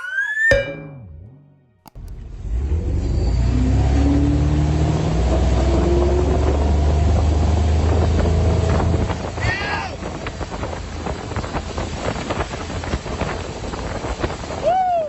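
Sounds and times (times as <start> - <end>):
engine revving up: 2.0 - 9.4.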